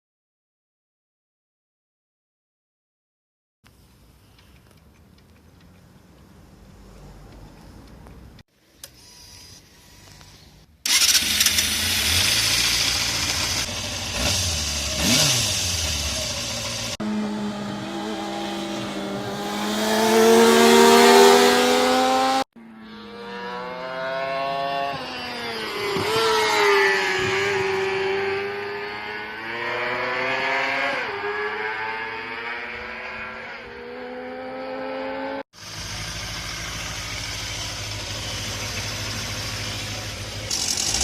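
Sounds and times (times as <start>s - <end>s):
motorcycle engine accelerating: 10.9s - 41.0s.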